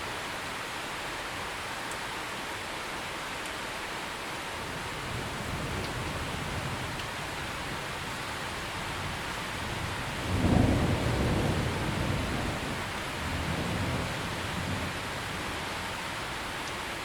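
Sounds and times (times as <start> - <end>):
heavy rain: 0.0 - 17.0
thunder rumbling: 4.6 - 16.3.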